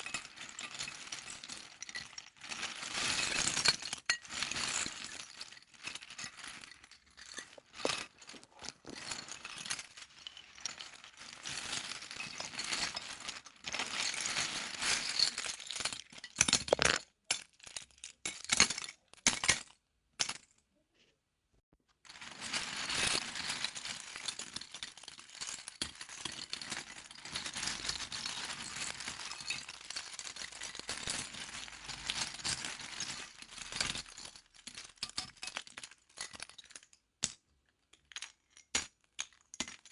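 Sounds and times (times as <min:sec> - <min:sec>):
plastic toy bricks rattling: 0:05.2 - 0:13.9, 0:16.2 - 0:17.1.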